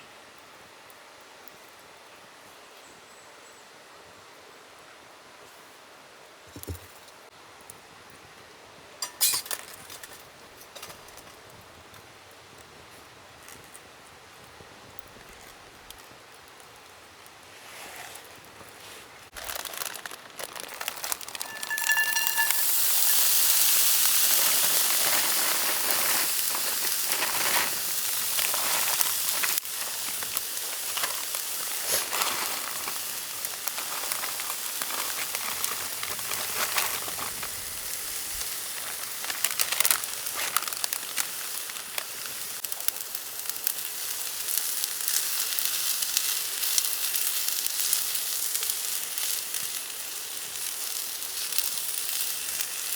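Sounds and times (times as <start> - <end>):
food sizzling in hot oil: 20.7 - 52.9
stirring clicks and scrapes: 20.8 - 33.0.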